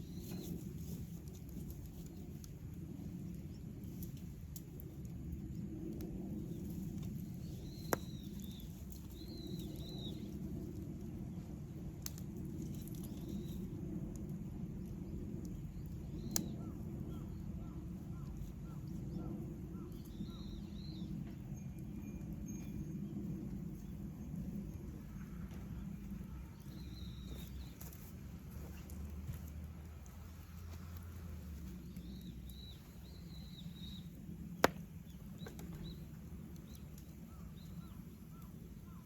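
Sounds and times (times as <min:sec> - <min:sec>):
campfire burning: 0:00.0 - 0:39.0
small birds chirping: 0:06.4 - 0:11.2, 0:12.6 - 0:13.7, 0:14.8 - 0:39.0
sharp fire pops: 0:07.0 - 0:10.2, 0:33.9 - 0:36.0.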